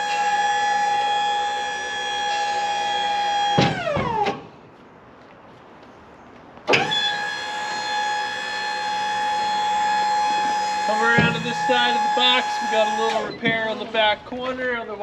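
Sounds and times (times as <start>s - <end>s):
motor whining: 6.8s - 13.3s.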